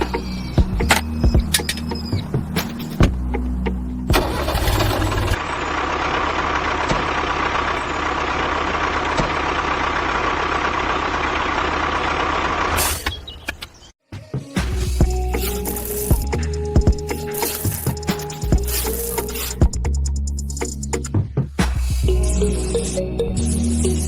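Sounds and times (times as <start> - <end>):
small motor running: 15.1 - 19.7.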